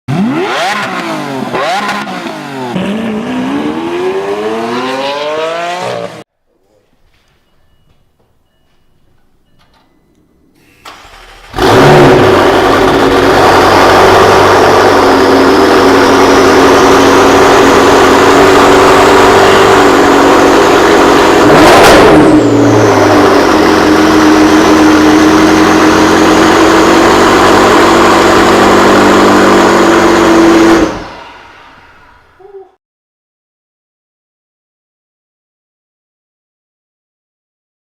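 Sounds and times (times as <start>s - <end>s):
engine rev blip: 0.1s - 6.2s, 9.6s - 32.5s
car engine fast idle: 10.6s - 11.8s.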